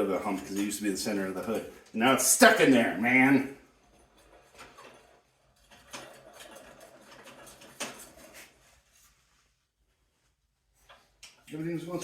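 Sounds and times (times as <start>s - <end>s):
sheet metal scraping and rattling: 0.0s - 9.1s.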